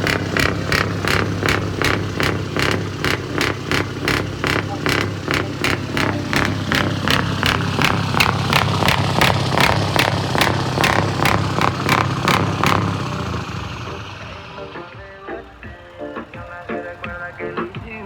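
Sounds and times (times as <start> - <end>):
sharp regular clicks: 0.0 - 13.3
diesel truck engine rumbling: 0.0 - 18.0.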